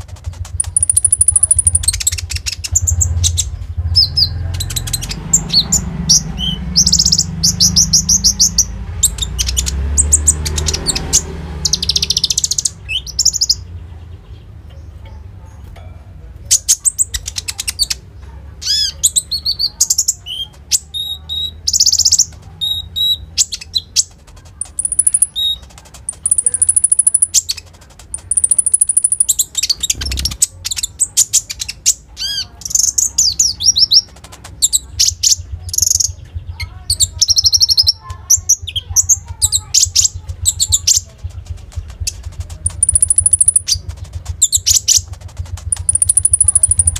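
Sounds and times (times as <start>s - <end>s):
low hum: 0.0s - 9.3s
bird singing chirps and trills: 0.0s - 46.9s.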